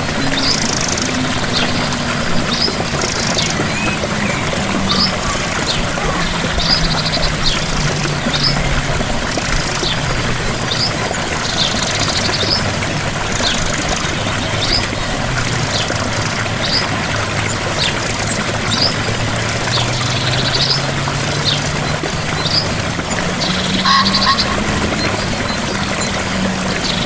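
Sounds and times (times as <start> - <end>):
waterfall pouring: 0.0 - 27.0.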